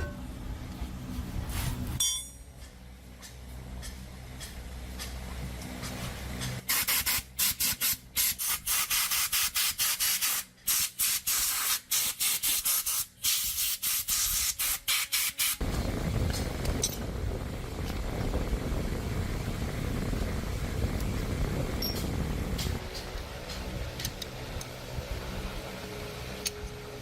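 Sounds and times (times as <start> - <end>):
steady low hum: 0.0 - 6.6, 15.6 - 27.0.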